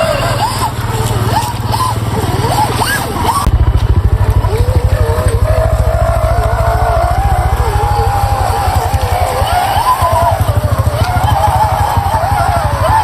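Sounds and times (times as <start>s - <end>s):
low fast engine-like pulsing: 0.0s - 13.0s
toy car motor whine: 0.0s - 13.0s.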